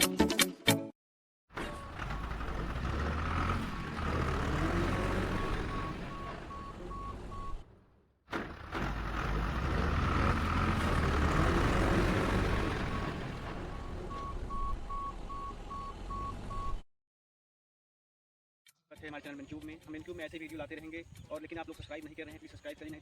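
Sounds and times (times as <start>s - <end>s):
heavy vehicle engine rumbling: 1.5s - 16.8s
reversing alarm beeping: 5.1s - 7.6s, 12.8s - 16.8s.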